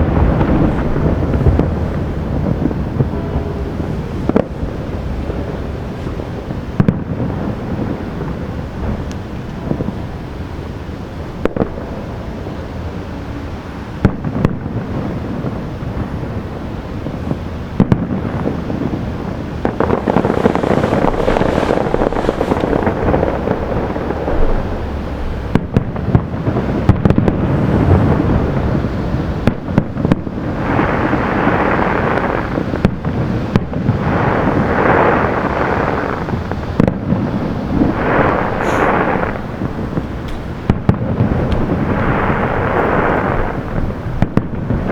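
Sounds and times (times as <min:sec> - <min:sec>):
fireworks crackling: 0:00.0 - 0:10.3, 0:14.0 - 0:44.9
firework shells bursting: 0:19.6 - 0:23.7, 0:37.6 - 0:44.4.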